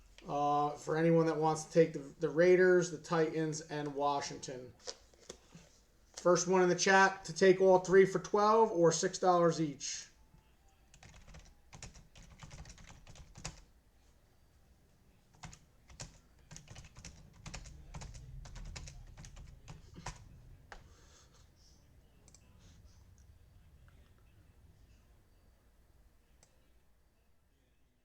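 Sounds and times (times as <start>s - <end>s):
typing on keyboard: 10.9s - 13.6s, 15.3s - 20.9s.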